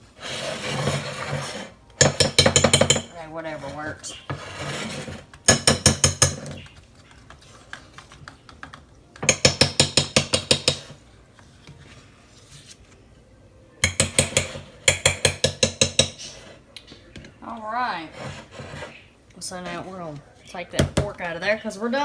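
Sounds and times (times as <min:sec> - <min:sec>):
fork scraping butter in a dish: 0:00.2 - 0:01.8, 0:03.5 - 0:05.4, 0:18.0 - 0:20.0.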